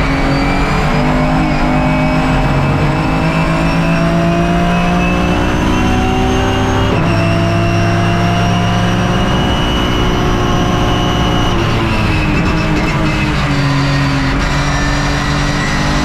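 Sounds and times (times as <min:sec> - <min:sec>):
race car engine accelerating: 0:00.0 - 0:16.0.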